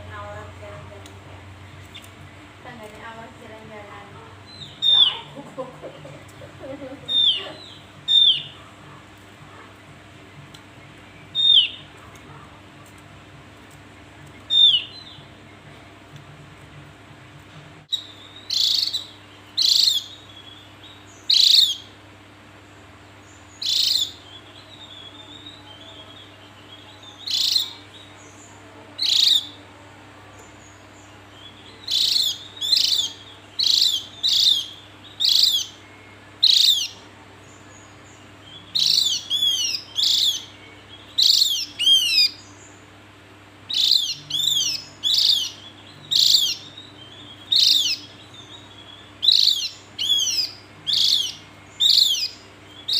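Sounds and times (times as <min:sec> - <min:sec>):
faint low hum: 0:00.0 - 0:52.9
bird calling high notes: 0:31.3 - 0:37.1, 0:38.6 - 0:42.5, 0:43.7 - 0:52.9.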